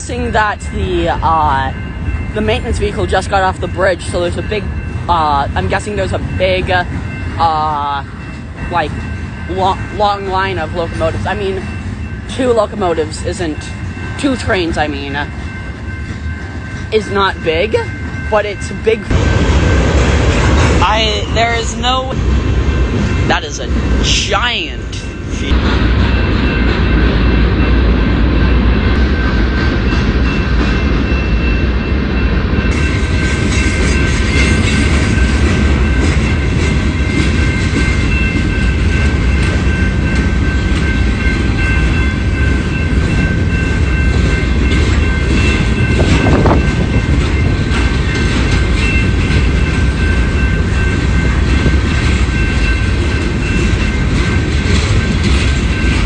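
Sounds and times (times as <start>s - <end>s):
train cars rumbling past: 0.0s - 56.0s.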